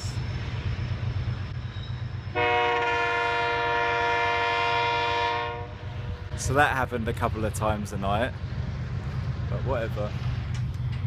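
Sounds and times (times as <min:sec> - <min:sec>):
train air horn blast: 0:02.3 - 0:05.9.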